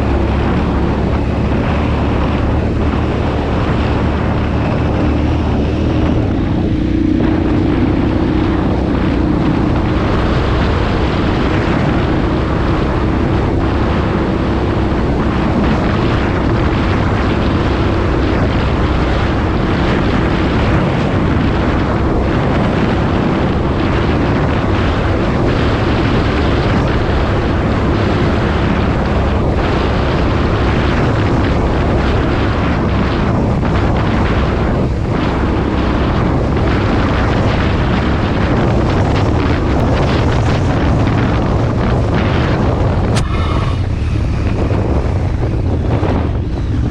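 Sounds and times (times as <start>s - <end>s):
motorcycle engine running under load: 0.0s - 46.9s
wind buffeting microphone: 0.0s - 46.9s.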